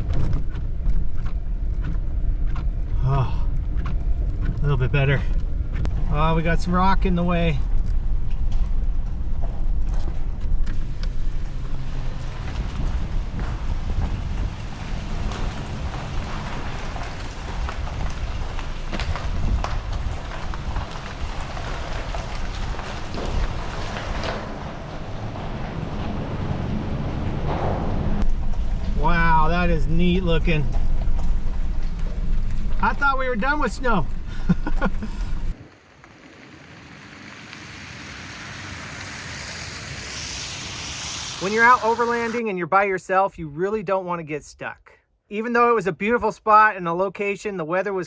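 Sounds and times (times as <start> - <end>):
gravel crunching under tyres: 0.0 - 42.4
truck engine and tyres rumbling: 0.0 - 42.6
steady hiss: 35.6 - 42.5.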